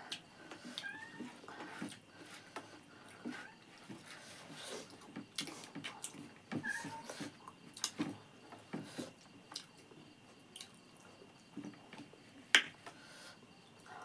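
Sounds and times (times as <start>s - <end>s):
wet chewing and lip smacks: 10.5s - 10.8s.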